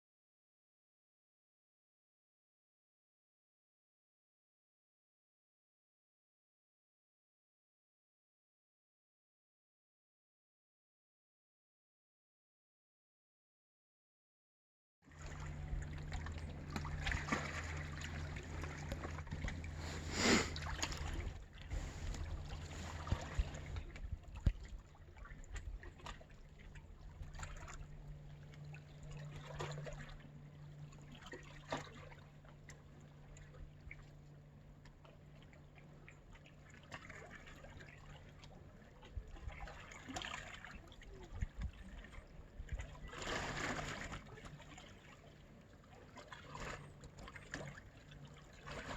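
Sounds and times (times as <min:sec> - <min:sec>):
waves lapping against shore: 0:15.1 - 0:34.1, 0:35.4 - 0:48.9
low steady hum: 0:15.1 - 0:48.9.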